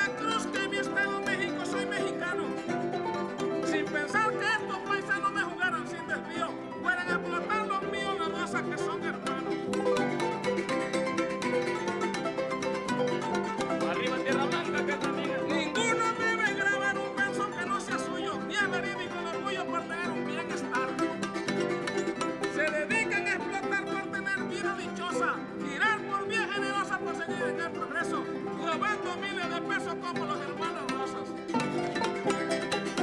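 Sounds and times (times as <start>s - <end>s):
harp playing: 0.0s - 33.0s
person singing: 0.0s - 33.0s
plucked guitar: 0.0s - 33.0s
strummed guitar: 0.0s - 33.0s.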